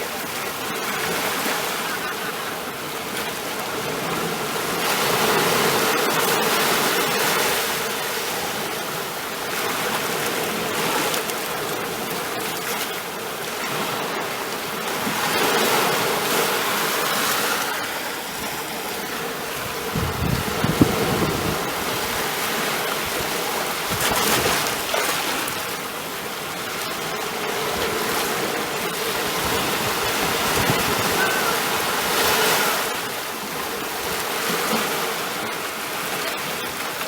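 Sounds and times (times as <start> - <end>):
ocean waves washing onto shore: 0.0 - 37.0.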